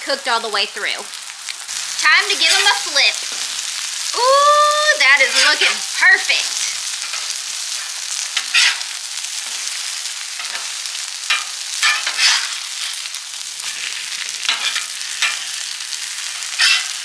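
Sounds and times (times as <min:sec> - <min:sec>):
chicken sizzling in oil: 0:00.0 - 0:17.0
loud sizzle bursts: 0:00.0 - 0:17.0.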